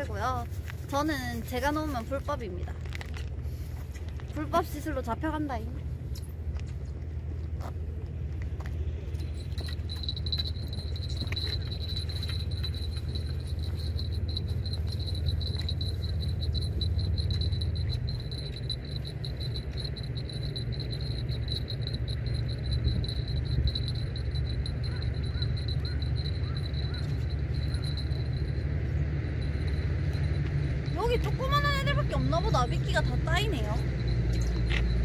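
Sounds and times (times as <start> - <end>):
low rumble: 0.0 - 35.0
high-pitched insect trill: 9.1 - 35.0.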